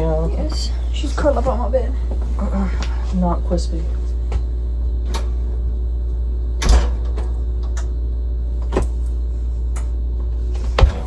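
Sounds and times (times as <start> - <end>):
steady low hum: 0.0 - 11.0
knocks and clunks: 10.6 - 11.0.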